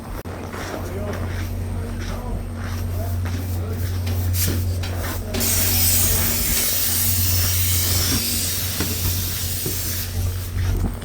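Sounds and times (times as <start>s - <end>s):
diesel locomotives idling: 0.0s - 11.0s
air brakes hissing: 3.5s - 10.9s
short sharp air puffs: 5.4s - 10.8s.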